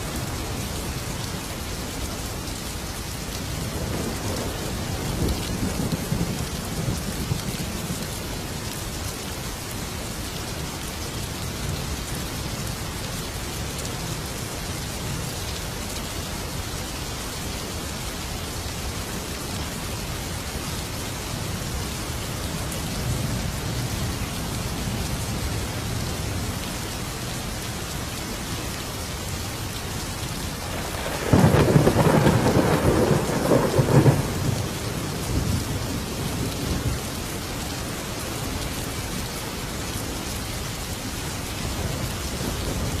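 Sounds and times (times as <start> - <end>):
heavy rain: 0.0 - 43.0
loud thunderclap: 30.7 - 35.6
distant thunder rumble: 30.7 - 37.0.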